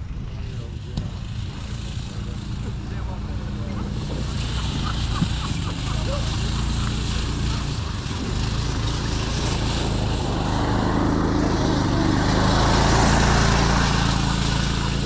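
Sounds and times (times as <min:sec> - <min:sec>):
off-road buggy engines running: 0:00.0 - 0:15.0.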